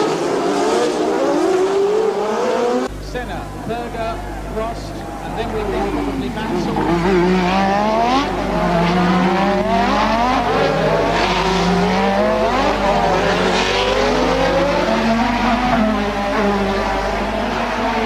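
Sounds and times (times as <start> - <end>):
race car engines accelerating: 0.0 - 18.0.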